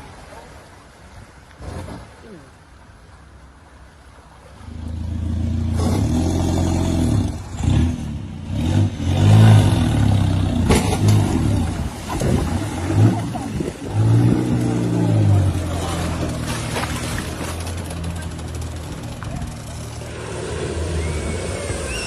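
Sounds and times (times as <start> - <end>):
vehicle engine revving: 4.7 - 22.0.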